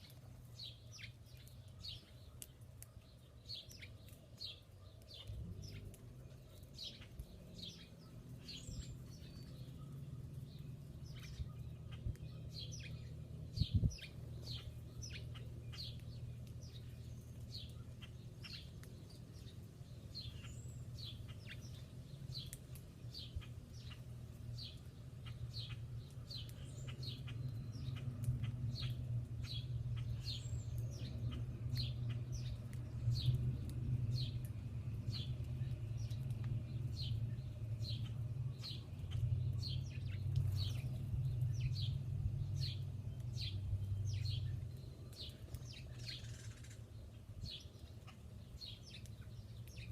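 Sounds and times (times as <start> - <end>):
small birds chirping: 0.0 - 49.9
low steady rumble: 3.5 - 49.9.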